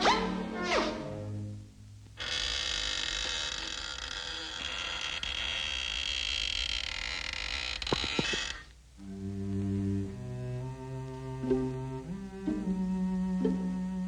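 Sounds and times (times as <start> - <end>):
low bowed strings: 0.0 - 2.3, 9.0 - 14.0.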